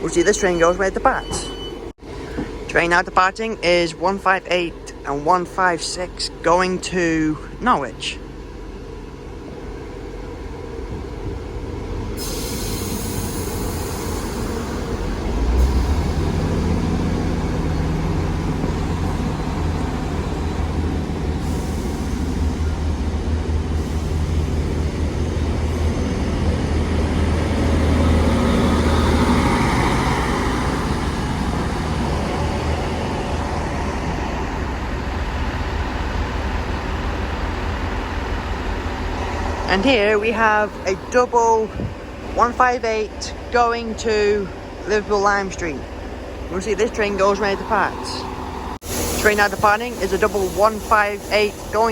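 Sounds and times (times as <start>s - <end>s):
diesel train engines rumbling: 0.0s - 51.9s
train wheels on rails: 8.4s - 42.4s.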